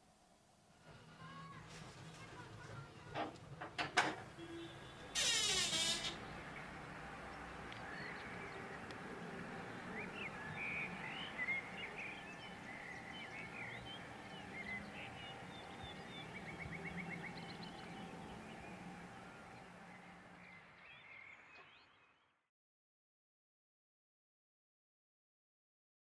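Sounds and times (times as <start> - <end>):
outdoor background noise: 0.0 - 22.5
birds chirping: 4.3 - 22.4.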